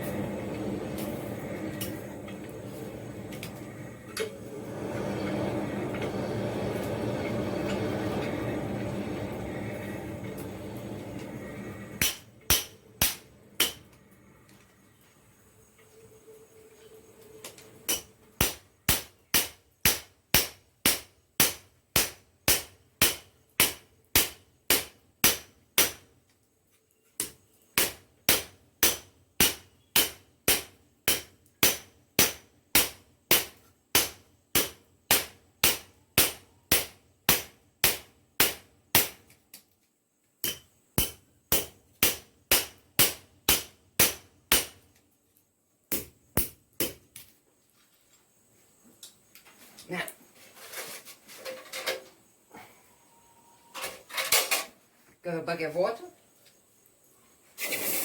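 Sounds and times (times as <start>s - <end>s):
metal-on-metal hammering: 12.0s - 13.9s, 17.9s - 26.1s, 27.2s - 39.2s, 40.4s - 44.8s, 45.9s - 47.0s.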